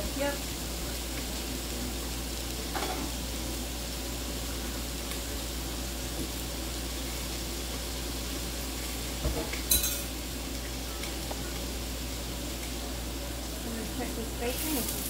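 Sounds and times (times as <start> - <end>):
meat frying with sizzle: 0.0 - 15.0
kitchenware clinks: 9.7 - 10.1.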